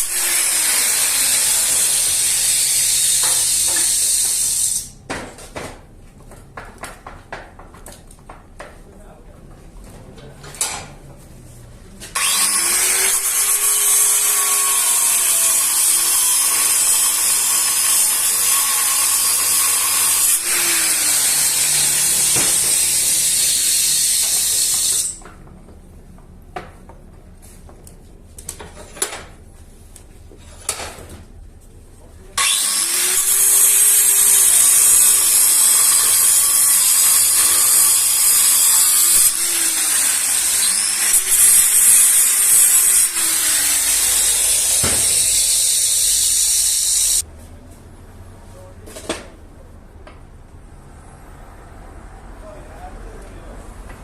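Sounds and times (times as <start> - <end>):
power tool working metal: 0.0 - 5.0, 12.2 - 25.2, 32.4 - 47.2.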